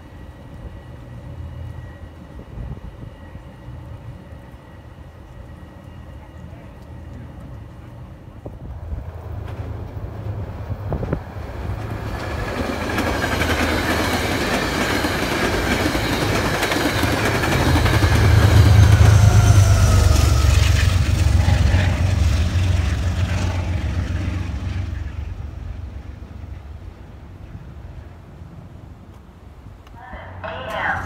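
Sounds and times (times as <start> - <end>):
passenger train rumbling: 0.0 - 31.0
wheels clicking over rail joints: 9.2 - 19.0
falling whine: 15.6 - 26.6.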